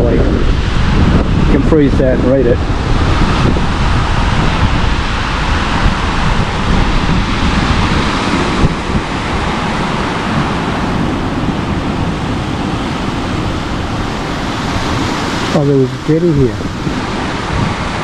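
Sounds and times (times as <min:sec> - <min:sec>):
surf breaking: 0:00.0 - 0:18.0
wind buffeting the microphone: 0:00.0 - 0:18.0.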